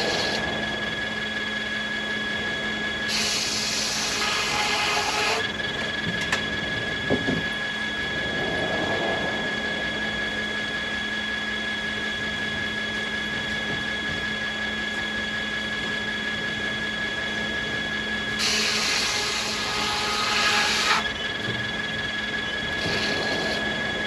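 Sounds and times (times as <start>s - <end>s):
saw cutting wood hiss: 0.0s - 0.8s, 3.1s - 5.5s, 18.4s - 21.1s, 22.5s - 23.9s
circular saw blades whining: 0.0s - 24.0s.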